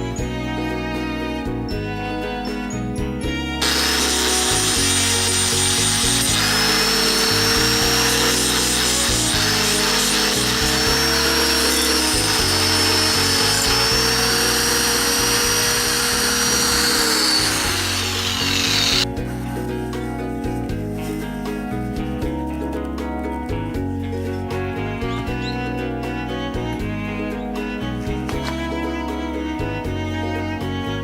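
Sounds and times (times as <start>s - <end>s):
electric buffing tool on metal: 3.6s - 19.1s.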